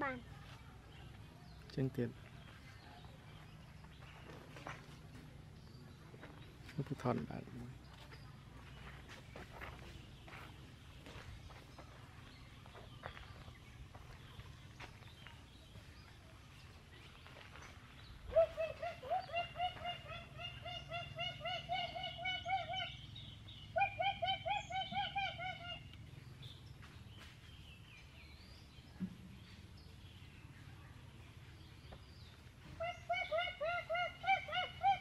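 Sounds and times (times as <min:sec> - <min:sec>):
bird calling with rising notes: 0:18.0 - 0:26.8.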